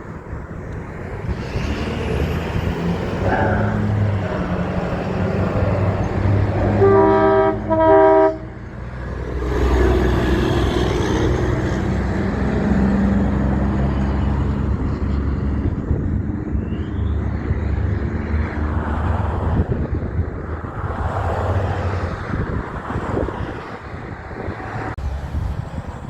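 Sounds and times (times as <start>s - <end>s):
diesel engine rumble: 0.0s - 26.0s
truck passing with tyre noise: 0.0s - 26.0s
truck air horn blasts: 6.5s - 8.7s.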